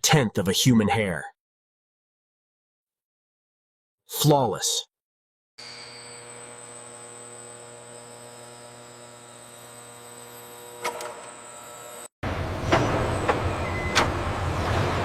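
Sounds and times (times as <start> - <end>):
noisy machinery: 5.6 - 15.0.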